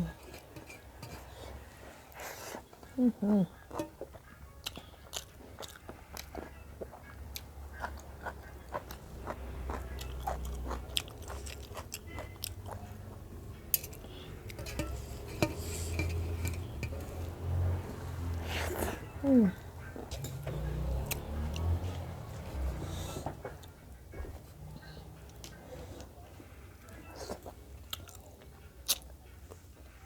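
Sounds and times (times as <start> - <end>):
chewing and biting: 3.6 - 14.7, 26.9 - 29.7.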